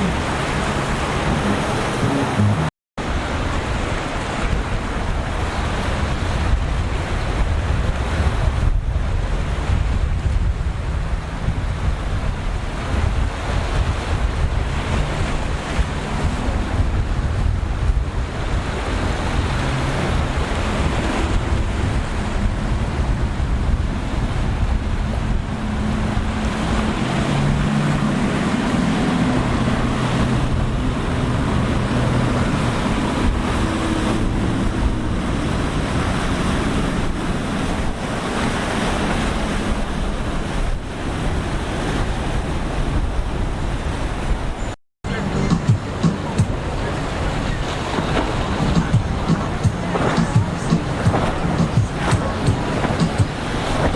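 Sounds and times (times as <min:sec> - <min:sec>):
boat engines droning: 0:00.0 - 0:53.9
waves breaking: 0:00.0 - 0:53.9
wind buffeting the microphone: 0:03.0 - 0:44.8.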